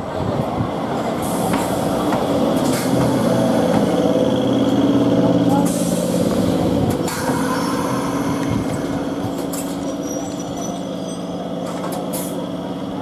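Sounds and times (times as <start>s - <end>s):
electric train humming: 0.0s - 13.0s.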